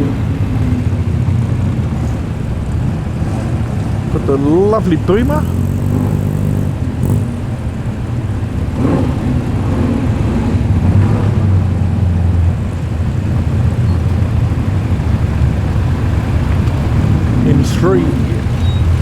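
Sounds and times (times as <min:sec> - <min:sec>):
car engine at low revs: 0:00.0 - 0:19.0.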